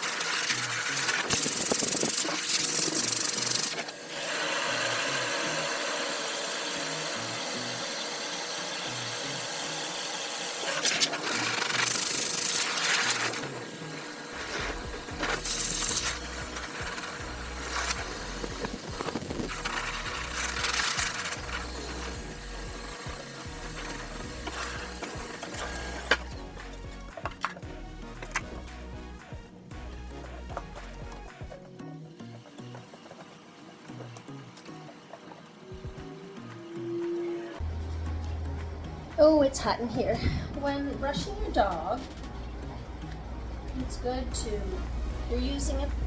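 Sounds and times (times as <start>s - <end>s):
pet dryer blowing air: 0.0s - 26.3s.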